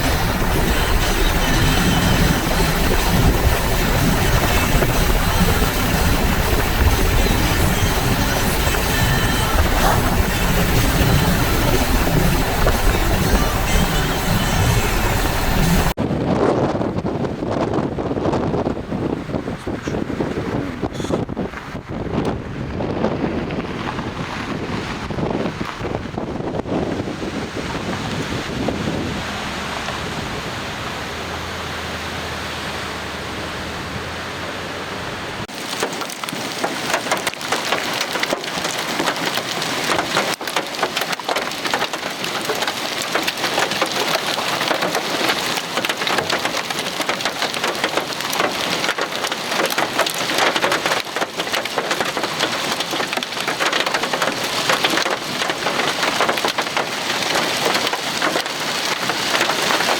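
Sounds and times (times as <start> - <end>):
heavy rain pelting down: 0.0 - 16.0, 19.4 - 59.9
steady rushing noise with hum: 0.0 - 35.5.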